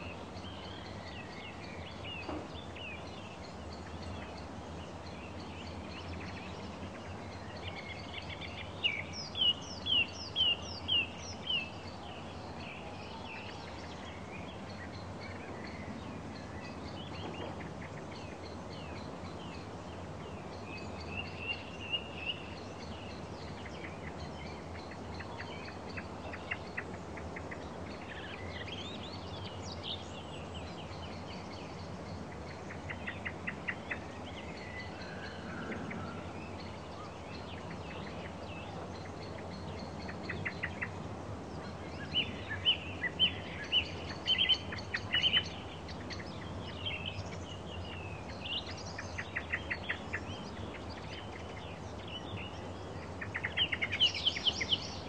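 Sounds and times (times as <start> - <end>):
low background noise: 0.0 - 55.0
small birds chirping: 0.0 - 55.0.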